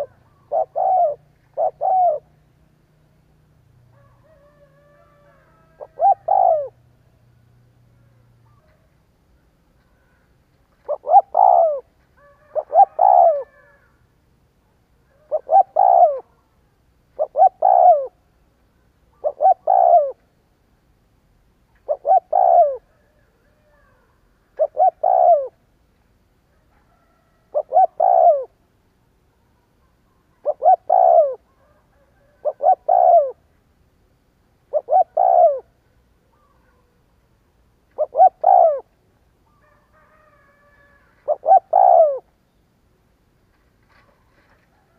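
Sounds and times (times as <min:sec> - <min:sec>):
dove cooing: 0:00.0 - 0:07.2, 0:09.8 - 0:14.0, 0:15.0 - 0:16.5, 0:17.1 - 0:18.3, 0:19.1 - 0:20.3, 0:21.8 - 0:25.7, 0:26.6 - 0:28.6, 0:29.8 - 0:33.5, 0:34.6 - 0:37.0, 0:37.9 - 0:42.4.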